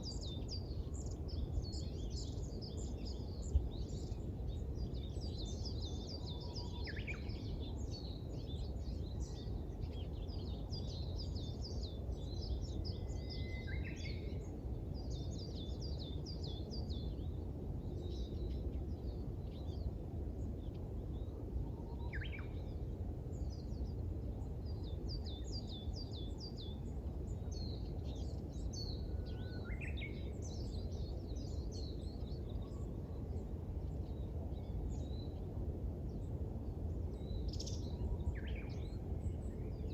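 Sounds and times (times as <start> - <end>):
songbirds twittering: 0.0 - 39.9.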